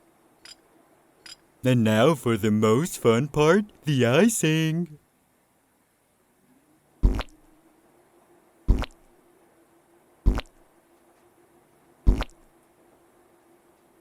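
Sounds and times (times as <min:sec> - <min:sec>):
cartoon wet squish effects: 0:07.0 - 0:07.3, 0:12.1 - 0:12.4.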